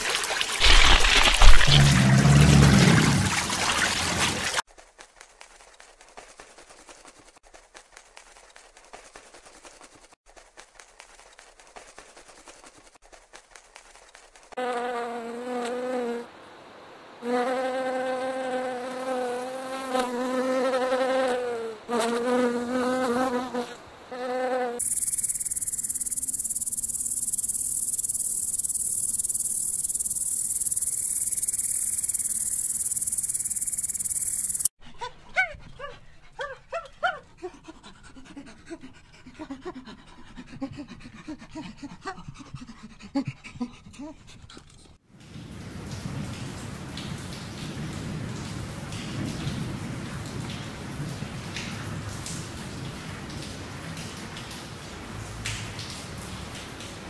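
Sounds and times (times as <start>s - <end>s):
bumblebee buzzing: 0.6s - 2.7s, 17.2s - 34.7s
high-pitched insect hiss: 24.5s - 34.7s
short clicks and chirps: 24.8s - 34.7s.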